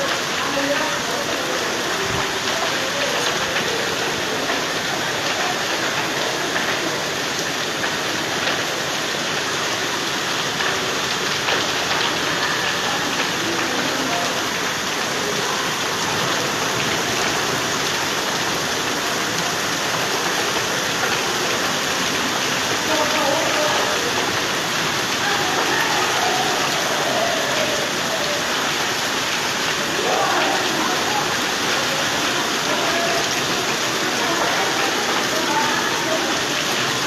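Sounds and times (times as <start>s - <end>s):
heavy rain falling: 0.0s - 37.0s.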